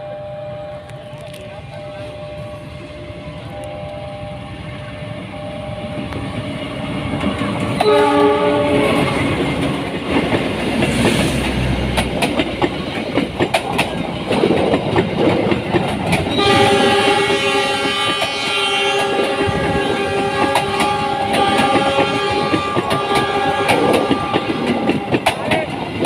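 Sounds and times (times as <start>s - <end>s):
train horn: 0.0s - 6.4s, 7.8s - 9.6s, 16.3s - 25.3s
train wheels clattering over rail joints: 8.8s - 26.0s.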